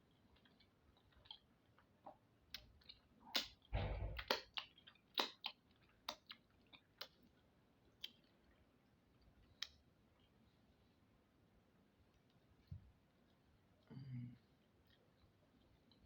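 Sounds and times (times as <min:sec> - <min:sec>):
person chewing with mouth clicks: 0:00.3 - 0:08.6
lip smacks: 0:02.0 - 0:08.4.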